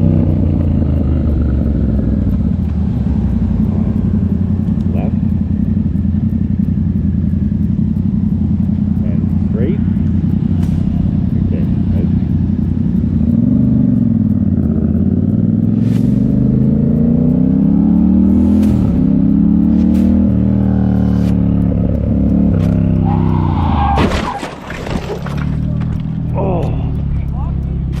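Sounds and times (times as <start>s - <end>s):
motorcycle engine revving: 0.0s - 24.4s, 25.0s - 28.0s
clattering noise: 24.0s - 26.2s.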